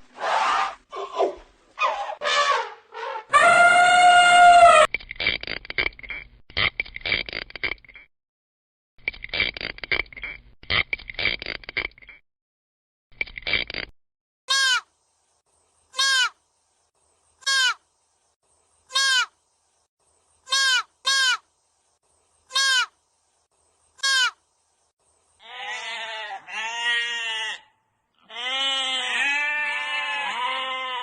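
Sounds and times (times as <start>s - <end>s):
livestock bleating: 17.4s - 17.8s, 18.9s - 19.3s, 22.5s - 22.9s, 24.0s - 24.4s, 25.4s - 31.0s.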